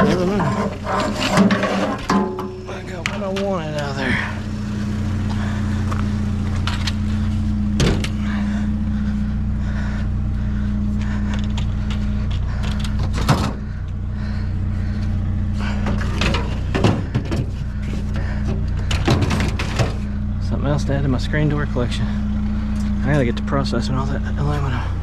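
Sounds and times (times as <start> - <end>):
vehicle engine idling: 0.0 - 25.0
sharp knocks and clunks: 0.4 - 3.5, 7.7 - 8.3, 11.3 - 13.8, 15.7 - 20.1.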